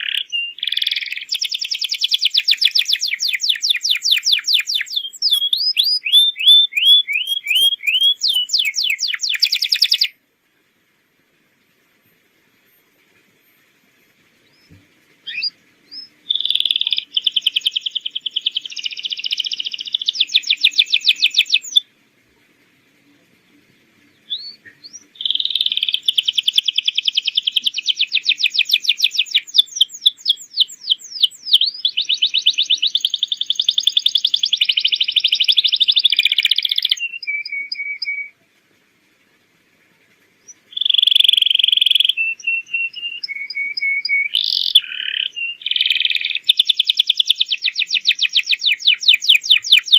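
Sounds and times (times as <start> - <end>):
canary singing trills: 0.0 - 10.2, 11.9 - 21.8, 23.6 - 38.4, 40.4 - 49.9.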